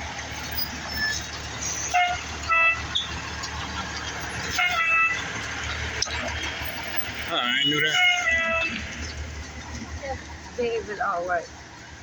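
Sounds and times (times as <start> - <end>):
idling engines and traffic: 0.0 - 12.0
emergency vehicle horn blasts: 1.7 - 3.1, 4.4 - 5.3, 7.4 - 9.0.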